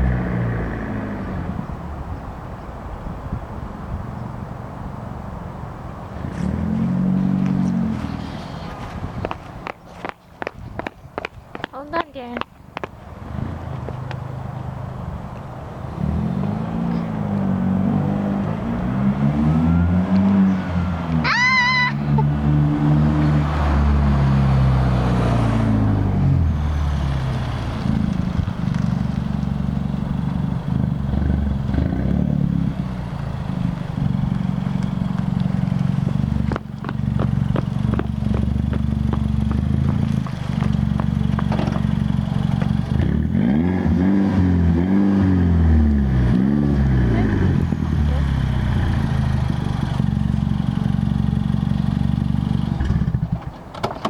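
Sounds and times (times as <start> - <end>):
car engine revving and idling: 15.7 - 21.3, 21.9 - 53.5
high wavering squeal: 19.4 - 22.3.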